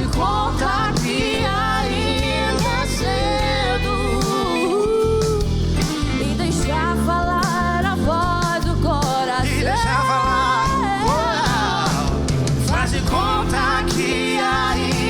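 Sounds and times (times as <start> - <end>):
live pop-rock band playing: 0.0 - 15.0.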